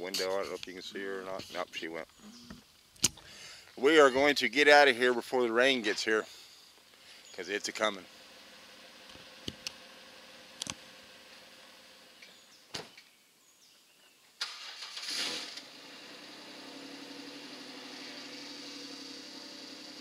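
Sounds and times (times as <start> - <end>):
sharp clicks: 2.4 - 3.3
car engine starting and idling: 7.6 - 12.3, 14.4 - 20.0.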